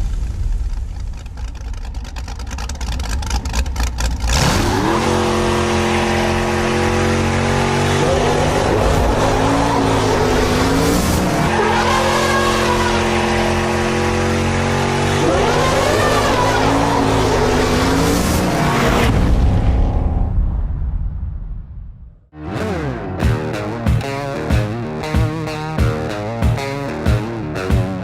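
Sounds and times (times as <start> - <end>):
car engine rough idle and revving: 0.0 - 19.3
engine squeals: 1.6 - 19.1.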